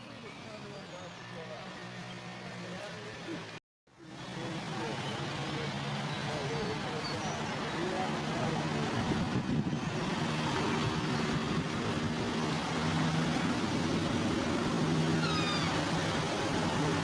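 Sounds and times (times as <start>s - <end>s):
driving noise: 1.1s - 17.0s.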